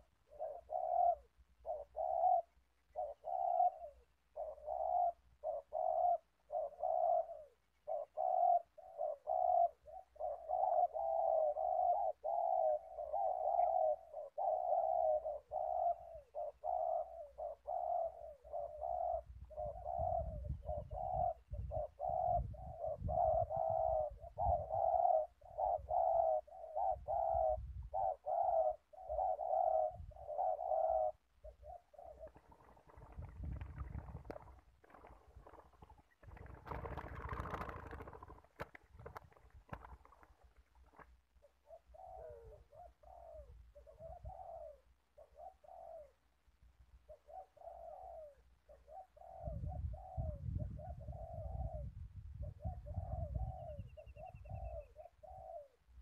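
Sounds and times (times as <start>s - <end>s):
doves cooing: 0.0s - 56.0s.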